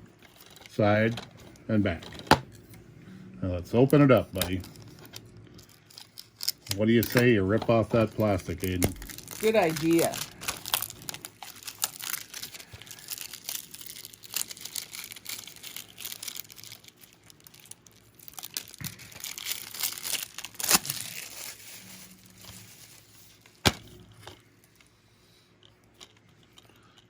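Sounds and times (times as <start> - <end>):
plastic wrap crinkling and ripping: 3.8 - 23.6.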